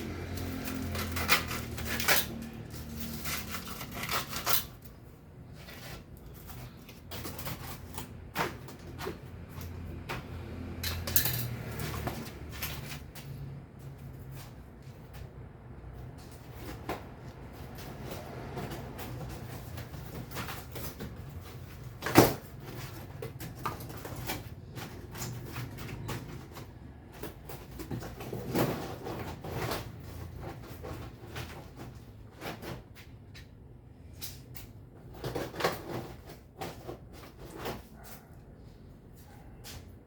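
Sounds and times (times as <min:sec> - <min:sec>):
objects knocking and clattering: 0:00.0 - 0:13.4.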